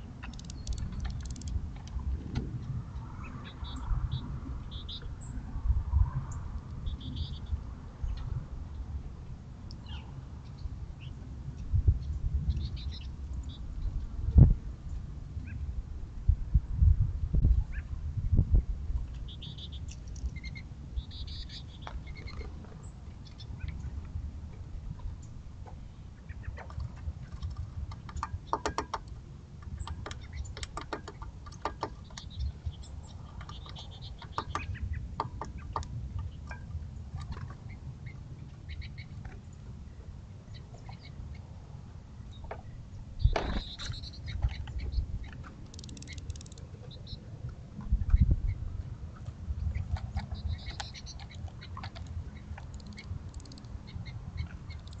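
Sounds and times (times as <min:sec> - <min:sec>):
low steady rumble: 0:00.0 - 0:28.5
birds calling: 0:03.0 - 0:05.4, 0:19.2 - 0:24.0, 0:29.8 - 0:47.4, 0:49.2 - 0:55.0.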